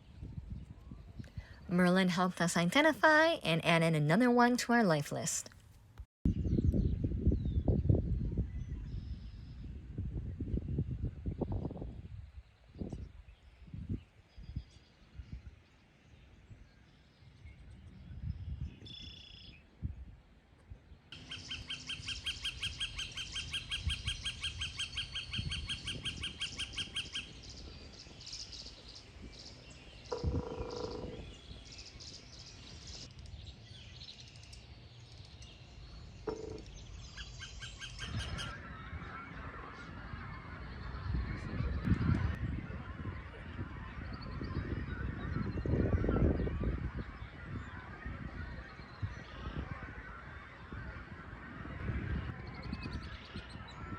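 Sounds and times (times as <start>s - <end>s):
bird trilling: 21.2s - 27.4s, 30.0s - 32.9s, 36.2s - 39.0s.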